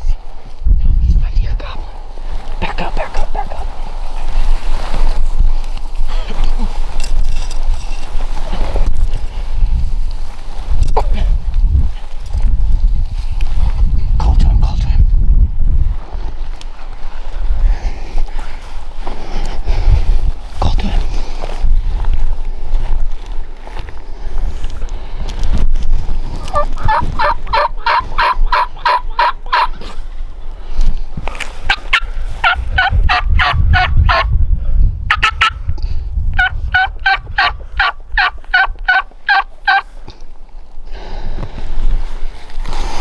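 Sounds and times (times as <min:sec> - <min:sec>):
turkey yelping: 0:26.4 - 0:29.7, 0:31.7 - 0:34.2, 0:35.1 - 0:35.5, 0:36.4 - 0:39.9.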